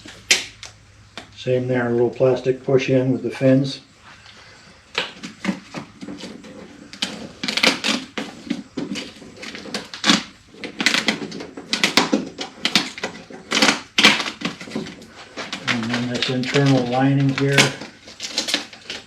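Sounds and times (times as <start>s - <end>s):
plastic parts clicking and clacking: 5.0s - 19.0s.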